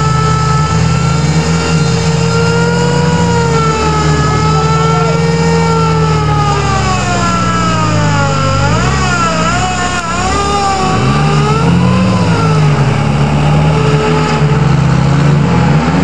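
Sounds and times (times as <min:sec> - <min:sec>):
engine at high revs: 0:00.0 - 0:16.0.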